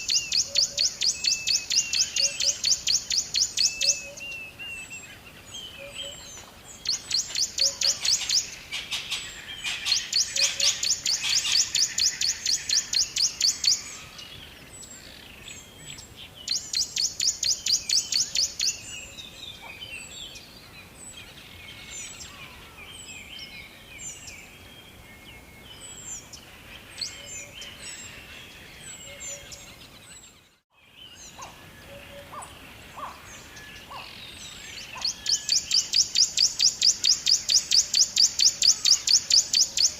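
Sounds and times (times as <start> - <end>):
birds short calls: 31.2 - 39.9
bird rapid repeated chirps: 34.8 - 39.9.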